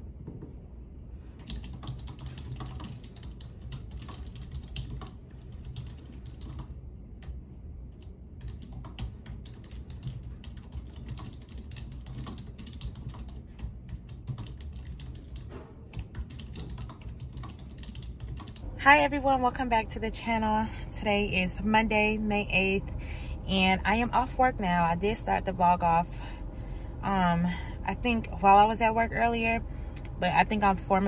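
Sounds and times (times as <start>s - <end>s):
steady low hum: 0.0s - 31.0s
keyboard typing clicks: 1.4s - 18.6s.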